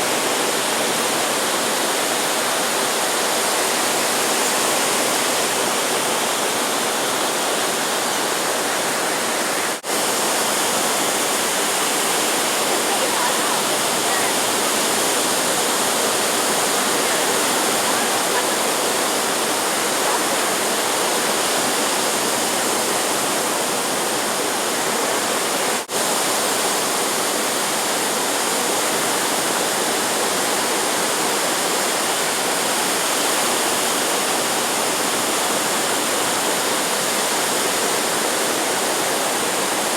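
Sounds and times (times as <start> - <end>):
ocean surf breaking: 3.2 - 27.8.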